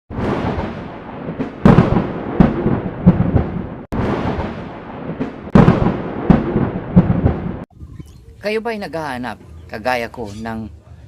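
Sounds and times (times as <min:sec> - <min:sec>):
heavy booming hits: 0:00.1 - 0:07.7.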